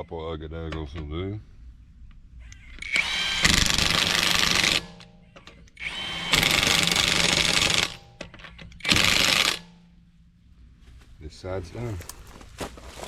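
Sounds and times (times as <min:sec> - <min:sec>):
impact wrench hammering: 0:02.8 - 0:10.0.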